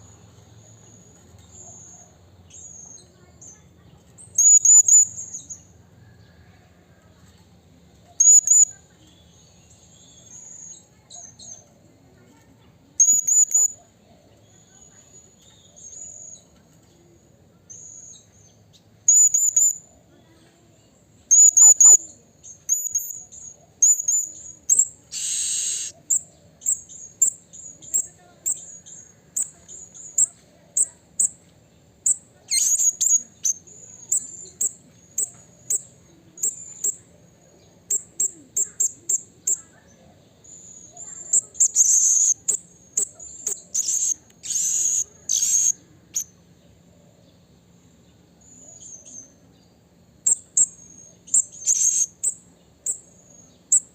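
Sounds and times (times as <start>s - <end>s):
parrot high-pitched calls: 25.1s - 26.2s, 41.3s - 46.3s.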